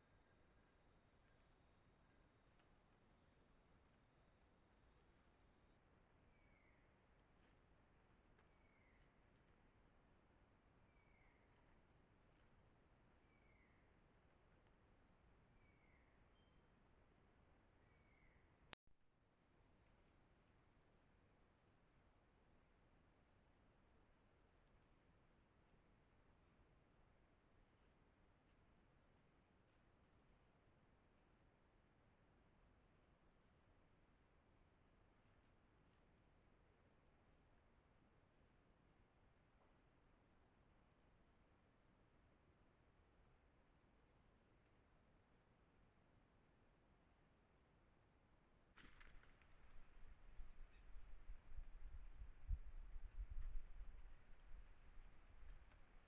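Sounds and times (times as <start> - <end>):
insects trilling: 4.7 - 18.5.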